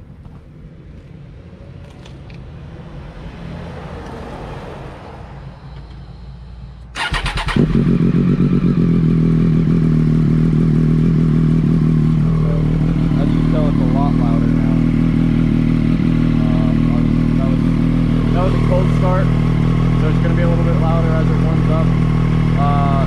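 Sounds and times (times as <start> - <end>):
motorcycle starter cranking: 7.0 - 8.0
motorcycle engine idling: 7.0 - 23.0.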